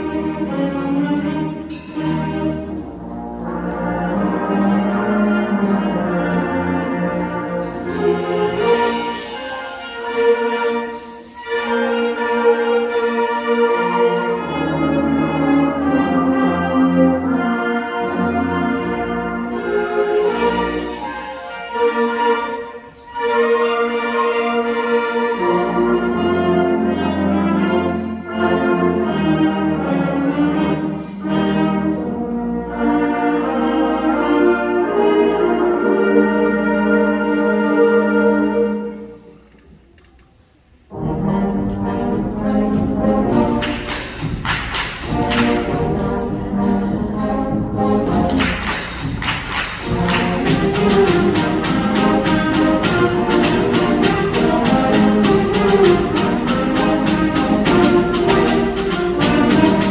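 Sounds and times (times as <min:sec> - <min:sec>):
brass sustained chords: 0:11.5 - 0:39.4, 0:40.9 - 0:44.4
concert band playing: 0:41.0 - 0:59.9.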